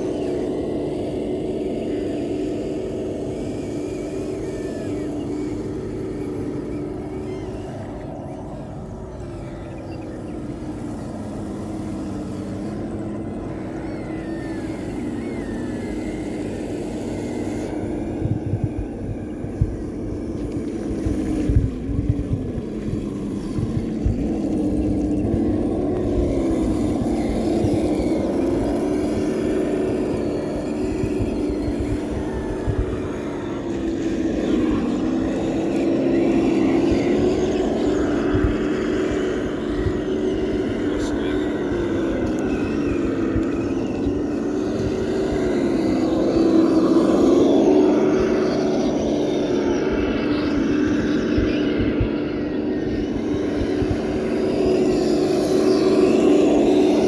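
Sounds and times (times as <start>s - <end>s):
electric motor whining: 0.0s - 57.0s
wind buffeting microphone: 0.0s - 57.0s.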